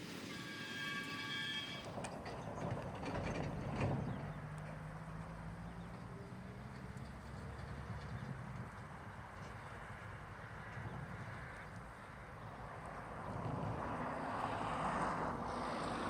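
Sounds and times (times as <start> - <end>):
high ringing tone: 0.0 - 1.9
freight train rumbling past: 0.0 - 4.9.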